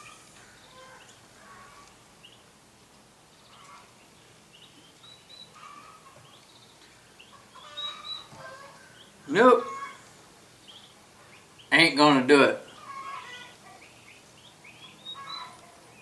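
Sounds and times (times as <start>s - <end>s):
faint bird chirps: 3.3s - 11.8s, 12.6s - 16.0s.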